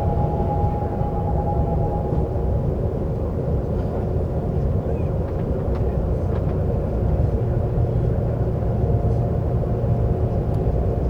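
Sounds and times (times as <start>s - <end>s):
faint hum: 0.0s - 4.3s
subway train rumbling on track: 0.0s - 11.0s.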